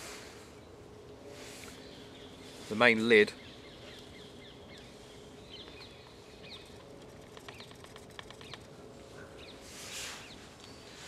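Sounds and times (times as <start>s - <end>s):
rustle: 0.0s - 11.0s
woodland birds chirping: 0.6s - 11.0s.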